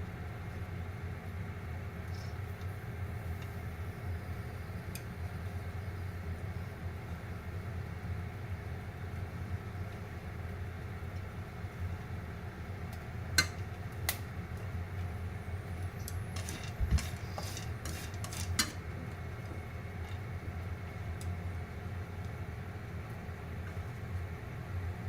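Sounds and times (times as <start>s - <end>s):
steady low hum: 0.0s - 25.0s
popcorn kernels popping: 13.4s - 14.3s.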